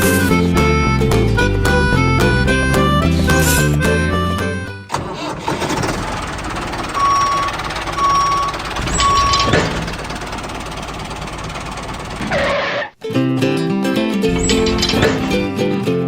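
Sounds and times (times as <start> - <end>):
reversing alarm beeping: 6.8 - 10.0
mechanical running noise: 7.0 - 10.6.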